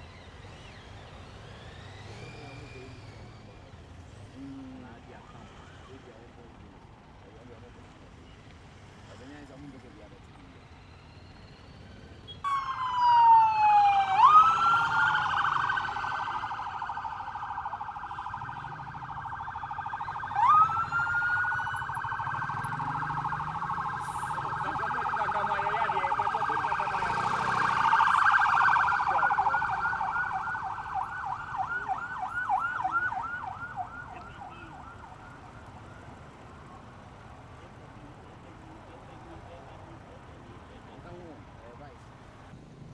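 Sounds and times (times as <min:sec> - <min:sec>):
siren warbling and yelping: 0:12.4 - 0:36.4.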